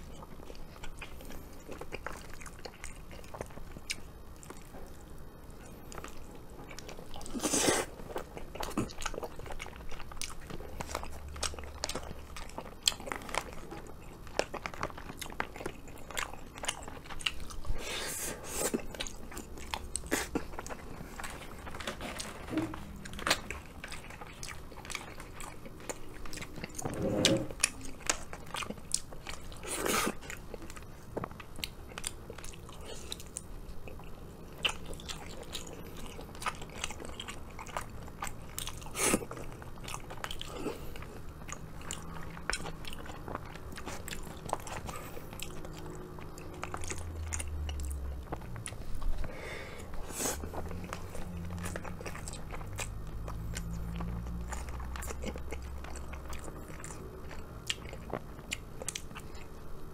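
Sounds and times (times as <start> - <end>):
person chewing food: 0.0 - 59.9.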